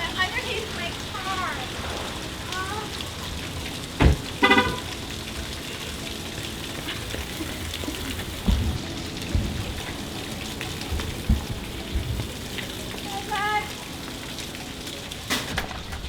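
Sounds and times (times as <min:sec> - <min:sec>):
steady rain falling: 0:00.0 - 0:16.0
low thumps: 0:04.0 - 0:04.9, 0:07.2 - 0:12.6.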